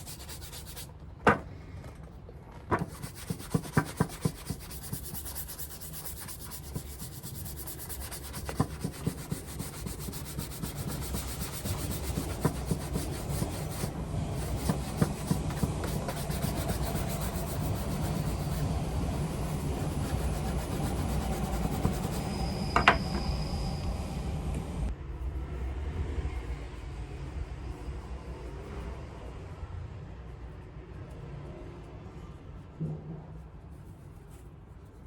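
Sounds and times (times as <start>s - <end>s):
leather shoe being scrubbed: 0.0s - 1.0s, 2.8s - 22.4s.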